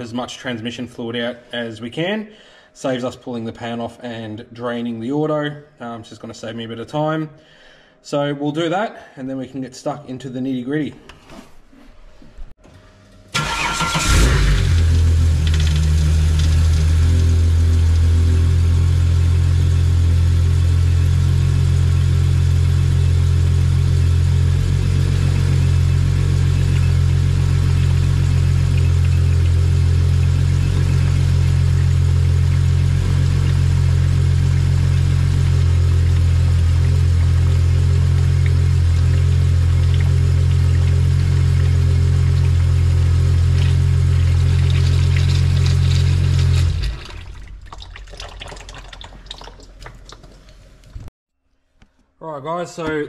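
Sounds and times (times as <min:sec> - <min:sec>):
starter motor cranking: 0:13.3 - 0:17.5
car engine idling: 0:13.3 - 0:47.7.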